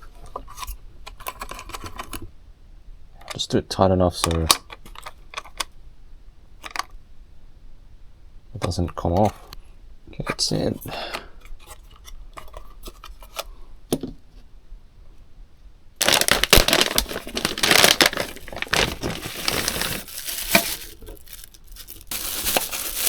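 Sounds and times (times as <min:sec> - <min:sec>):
plastic packaging crinkling: 0:16.0 - 0:23.0.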